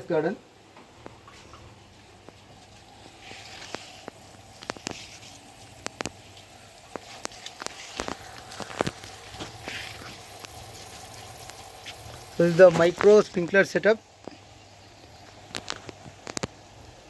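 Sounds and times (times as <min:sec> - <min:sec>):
pump humming: 0:00.5 - 0:17.0
sprinkler spray hiss: 0:02.2 - 0:14.4
water drops ticking: 0:04.0 - 0:13.3.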